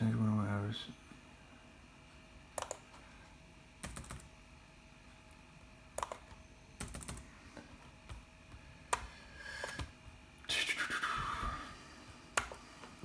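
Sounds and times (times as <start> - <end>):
typing on computer keyboard: 2.6 - 2.9, 3.8 - 4.3, 6.0 - 7.3.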